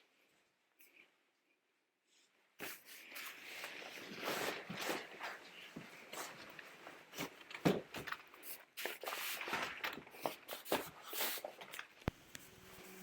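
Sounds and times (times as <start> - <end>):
knocks and rustles of handling: 2.7 - 12.4.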